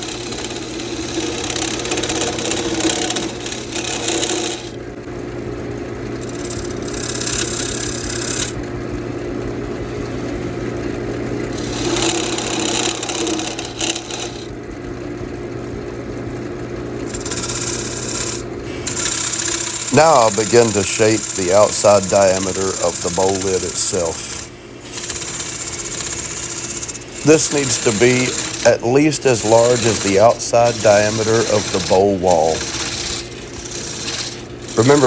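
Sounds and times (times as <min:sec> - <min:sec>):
wood lathe humming: 0:00.0 - 0:05.0, 0:06.0 - 0:08.6, 0:10.2 - 0:14.6, 0:17.0 - 0:35.0
gouge cutting wood hiss: 0:17.2 - 0:35.0.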